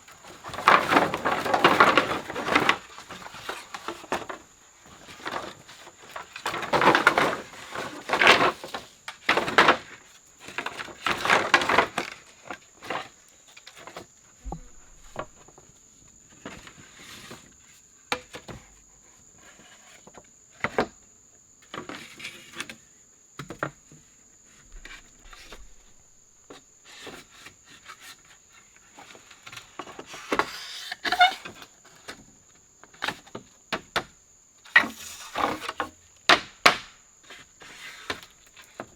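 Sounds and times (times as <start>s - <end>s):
brush rustling and scraping: 13.7s - 15.4s
wood knocks and clicks: 14.4s - 15.5s.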